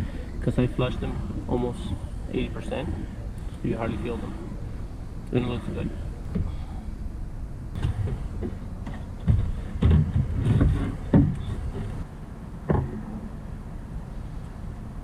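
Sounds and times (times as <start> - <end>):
steady low rumble: 0.0 - 15.0
knocks and clunks: 7.7 - 13.4.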